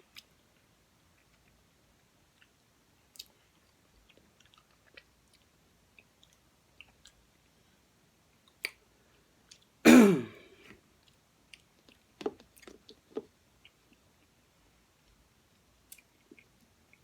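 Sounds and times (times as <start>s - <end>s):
mouth chewing sounds: 2.3s - 7.3s
person clearing throat: 9.9s - 10.6s.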